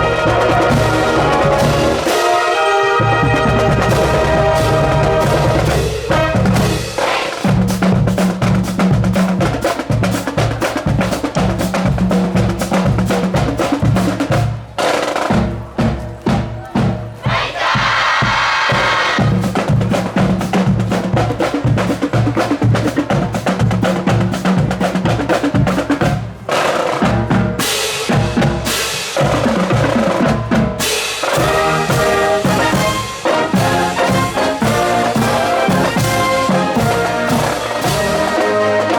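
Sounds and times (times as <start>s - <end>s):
brass section playing: 0.0s - 7.8s, 30.4s - 38.9s
snare and bass drums marching: 0.0s - 38.9s.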